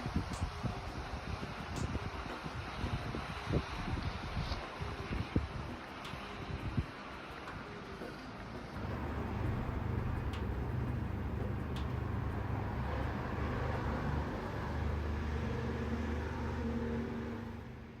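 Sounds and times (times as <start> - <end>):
faint ticks: 3.8 - 12.4
engine running low rumble: 8.8 - 18.0.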